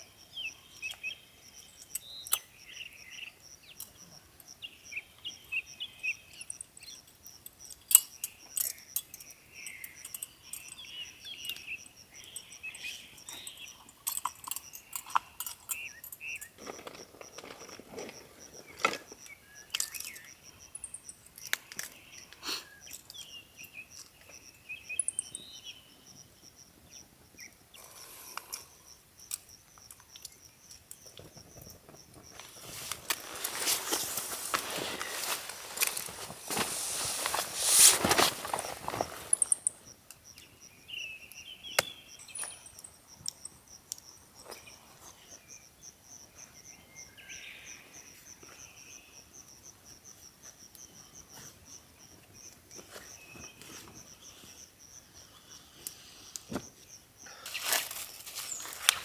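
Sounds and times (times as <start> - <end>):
birds chirping: 0.0 - 50.0, 50.8 - 59.0
clicks and rustles of handling: 13.2 - 23.3, 29.3 - 40.2, 57.5 - 59.0.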